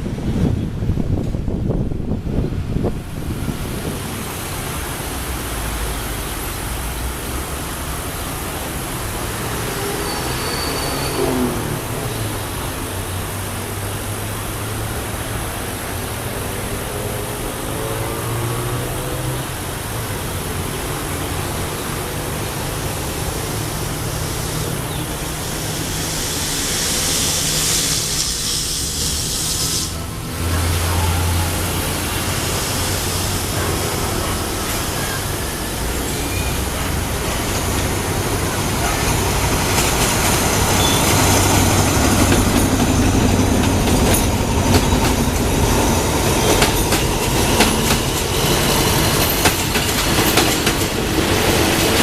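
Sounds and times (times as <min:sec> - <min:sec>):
diesel train engine drone: 0:00.0 - 0:52.0
train rumble and hiss: 0:00.0 - 0:52.0
high squeal: 0:09.8 - 0:11.6, 0:30.8 - 0:37.0, 0:40.7 - 0:41.7.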